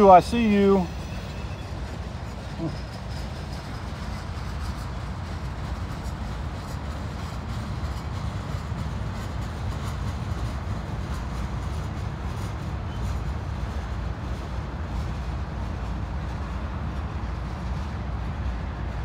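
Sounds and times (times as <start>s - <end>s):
freight train rumbling past: 0.0s - 19.0s.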